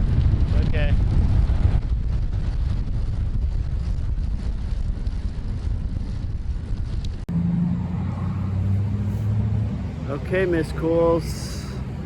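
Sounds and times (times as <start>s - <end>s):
wind buffeting microphone: 0.0s - 12.0s
road noise: 6.3s - 12.0s.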